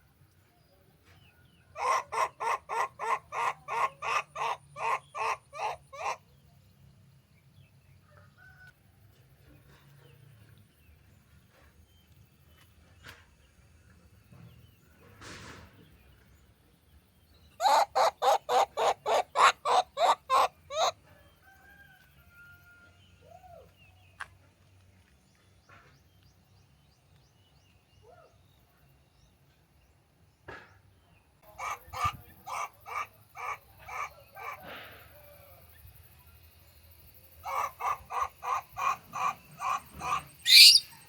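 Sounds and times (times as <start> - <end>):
animal calling: 1.8 - 6.2, 17.6 - 21.0, 31.5 - 35.5, 37.4 - 41.0.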